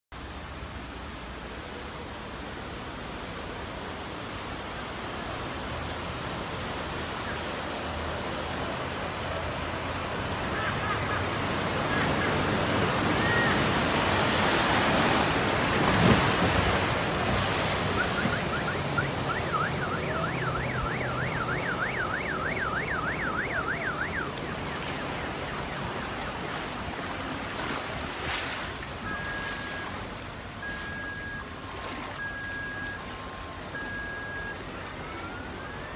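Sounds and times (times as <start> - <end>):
rain on wet street: 0.2 - 35.9
traffic hissing on wet road: 0.2 - 35.9
vehicle passing through water: 0.2 - 35.9
siren yelping: 17.7 - 27.0
short electronic beep: 17.9 - 24.3, 29.0 - 30.0, 30.6 - 31.6, 32.2 - 33.1.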